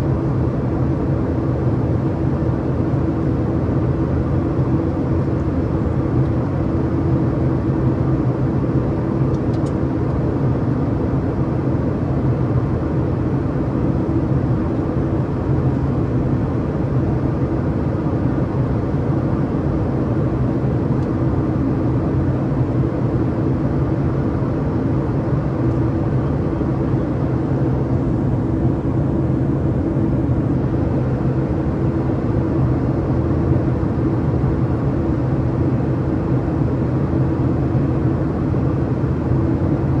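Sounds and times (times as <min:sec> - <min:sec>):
jet engine drone: 0:11.5 - 0:40.0.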